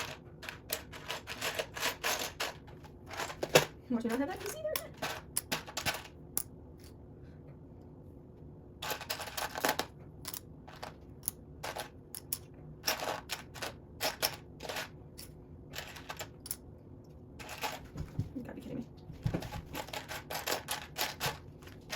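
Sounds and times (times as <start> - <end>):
plastic bricks clicking and clattering: 0.0 - 6.2, 19.8 - 21.9.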